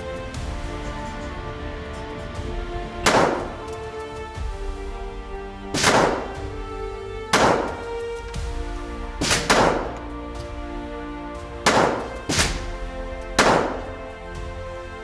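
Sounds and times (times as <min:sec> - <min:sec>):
background music: 0:00.0 - 0:15.0
handgun shots: 0:03.1 - 0:03.8, 0:05.8 - 0:06.6, 0:07.3 - 0:08.0, 0:09.2 - 0:10.1, 0:11.7 - 0:14.0.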